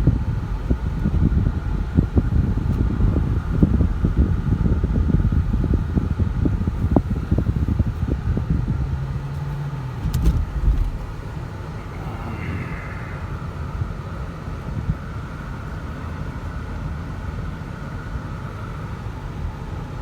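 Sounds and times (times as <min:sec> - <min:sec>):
road and tyre noise in car: 0:00.0 - 0:20.0
knocks from road surface: 0:10.0 - 0:11.4.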